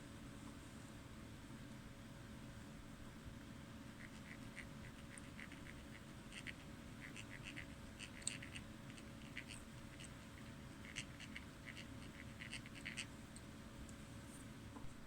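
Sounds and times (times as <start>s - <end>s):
low background hum: 0.0s - 15.0s
irregular clicking and scratching: 4.0s - 14.0s.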